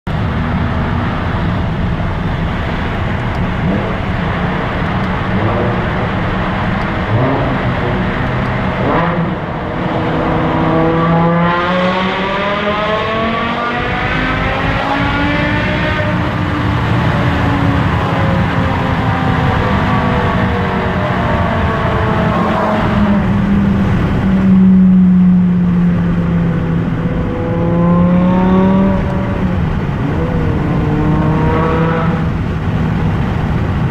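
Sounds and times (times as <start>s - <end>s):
car engine rumbling and accelerating: 0.0s - 33.9s.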